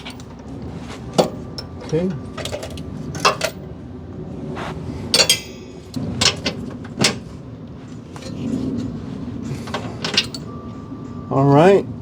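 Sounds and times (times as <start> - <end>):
tools clanking against metal: 0.0 - 3.7, 5.1 - 10.8.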